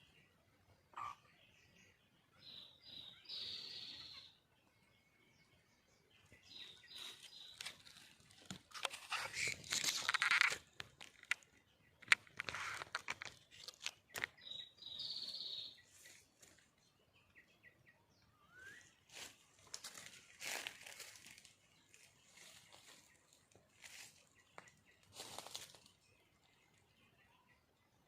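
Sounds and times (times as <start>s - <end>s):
high bird calls: 0.9s - 4.4s, 6.2s - 16.6s
rustling and crackling: 6.9s - 14.4s.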